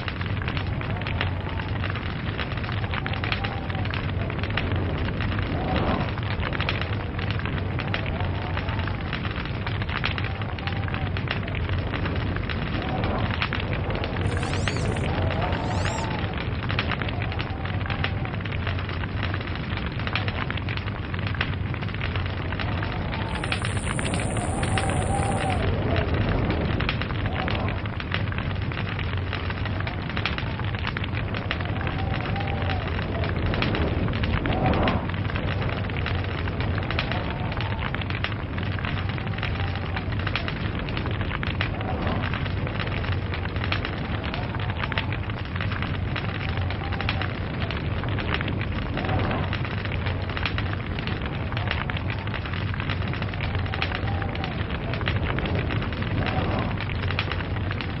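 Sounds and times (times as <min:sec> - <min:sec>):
log fire crackling: 0:00.0 - 0:58.0.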